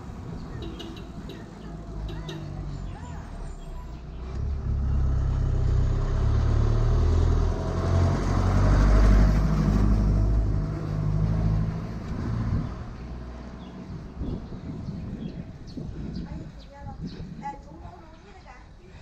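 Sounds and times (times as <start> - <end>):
vehicle passing with low rumble: 0.0 - 17.9.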